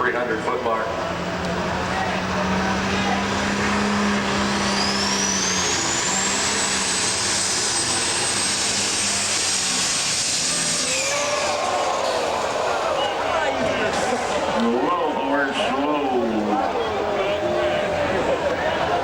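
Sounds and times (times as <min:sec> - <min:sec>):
tractor diesel engine roaring: 0:00.0 - 0:19.0
turbocharger whine: 0:00.8 - 0:19.0.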